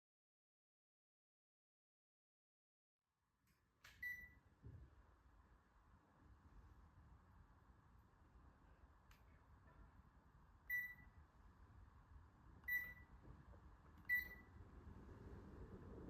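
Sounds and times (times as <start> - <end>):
faint low background hum: 3.3 - 16.0.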